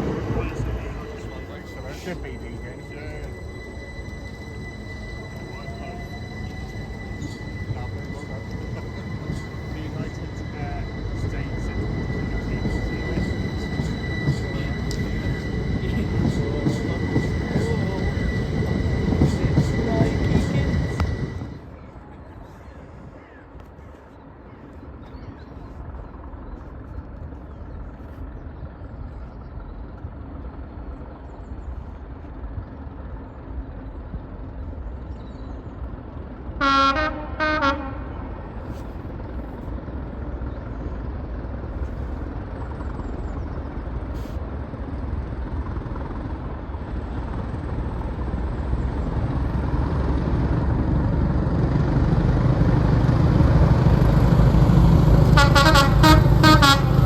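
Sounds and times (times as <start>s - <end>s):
train horn blasts: 0.0s - 21.4s, 36.6s - 38.8s, 55.2s - 57.0s
train rumble: 0.0s - 57.0s.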